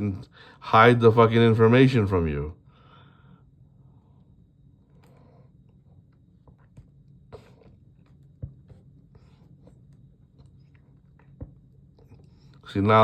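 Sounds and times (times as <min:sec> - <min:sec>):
low steady hum: 0:00.0 - 0:13.0
soft breaths: 0:02.6 - 0:12.7.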